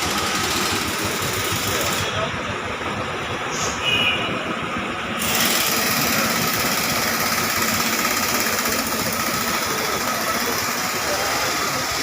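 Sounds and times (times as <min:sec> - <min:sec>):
motorcycle engine running: 0:00.0 - 0:02.7, 0:05.2 - 0:12.0.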